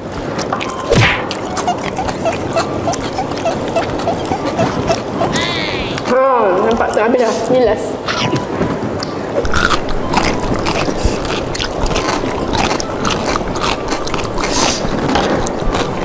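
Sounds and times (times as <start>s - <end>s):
chewing noodles: 0.0s - 16.0s.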